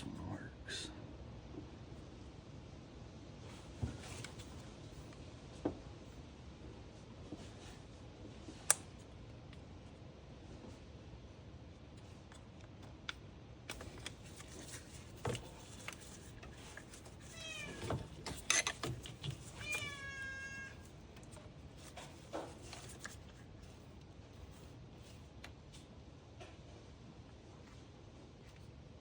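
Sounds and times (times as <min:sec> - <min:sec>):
meow-like calls: 0:17.3 - 0:18.0, 0:19.6 - 0:20.9.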